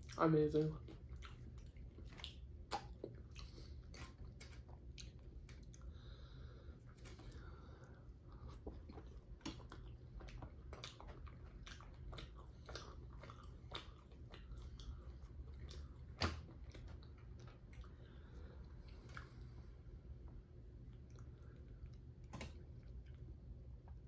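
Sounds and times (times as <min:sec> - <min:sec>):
person chewing food: 0:00.0 - 0:24.0
wet mouth clicks: 0:00.9 - 0:05.8.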